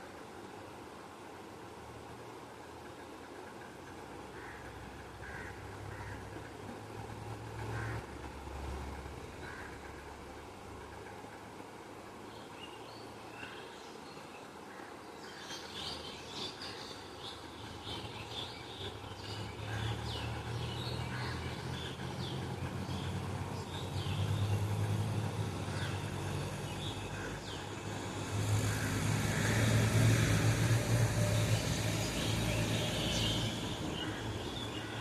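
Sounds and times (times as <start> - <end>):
rushing noise: 24.3 - 35.0.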